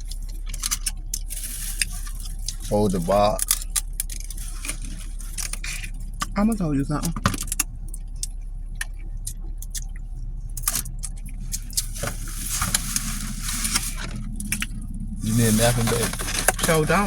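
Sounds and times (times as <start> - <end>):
sharp clicks and crackles: 0.0 - 17.0
steady low hum: 0.0 - 17.0
rustling: 0.2 - 6.2, 11.3 - 17.0.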